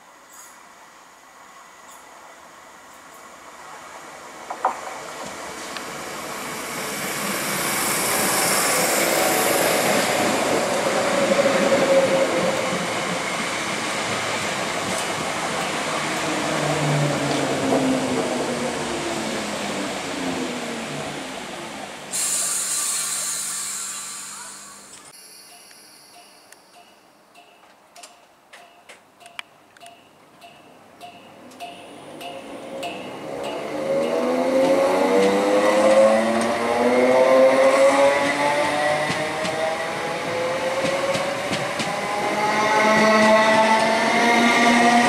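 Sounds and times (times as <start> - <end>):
train wheel and rail noise: 0.0 - 45.0
sudden hiss: 22.0 - 26.9.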